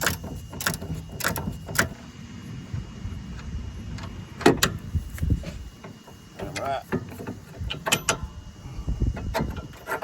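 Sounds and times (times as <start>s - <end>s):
metal clicks and knocks: 5.9s - 8.2s.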